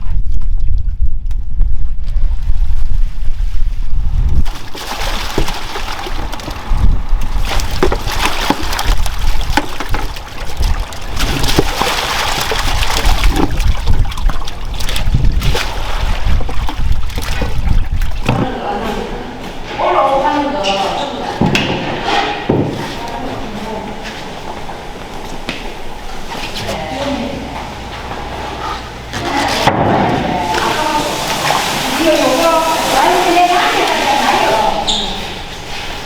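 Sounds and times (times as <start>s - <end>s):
water splashing and trickling: 4.0s - 21.4s, 29.4s - 36.0s.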